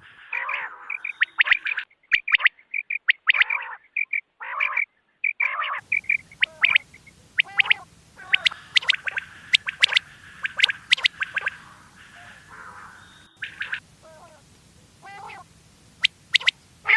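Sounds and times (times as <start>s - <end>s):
steady background hiss: 0.0s - 1.9s, 5.8s - 16.9s
quail calls: 0.0s - 16.9s.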